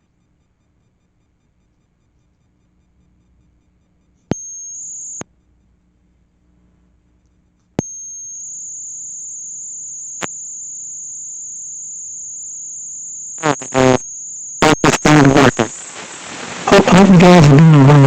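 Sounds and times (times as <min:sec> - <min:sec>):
click: 0:07.2 - 0:08.0, 0:10.2 - 0:10.4
high-pitched electronic tone: 0:07.8 - 0:15.8.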